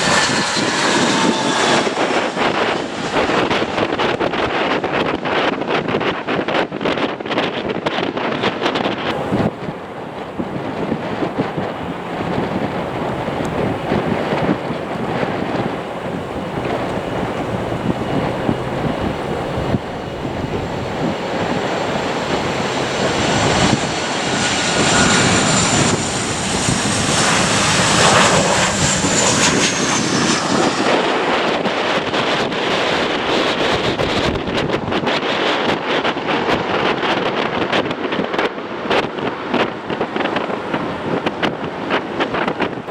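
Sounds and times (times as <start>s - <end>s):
high jet whine: 0.0s - 4.8s, 9.1s - 34.9s
jet engines on landing approach: 0.0s - 42.9s.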